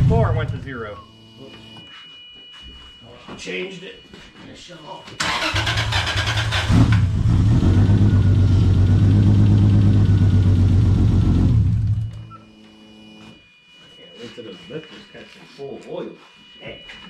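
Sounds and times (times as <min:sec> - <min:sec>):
car starter cranking: 0:05.2 - 0:07.2
car engine idling: 0:06.4 - 0:12.2.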